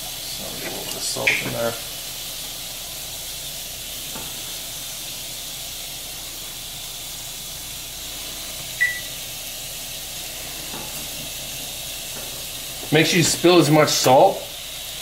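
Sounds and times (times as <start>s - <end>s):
chicken sizzling in a pan: 0.0s - 15.0s
short high ping: 8.8s - 9.1s.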